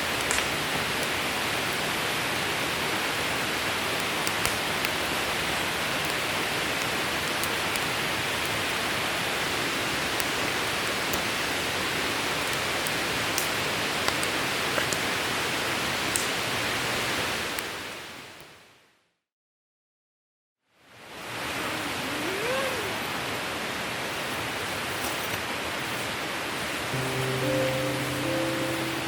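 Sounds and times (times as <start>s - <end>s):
fire crackling and popping: 0.0s - 1.8s, 3.2s - 15.4s, 16.0s - 16.5s
campfire hissing: 0.0s - 18.4s, 21.0s - 25.0s, 25.8s - 29.0s.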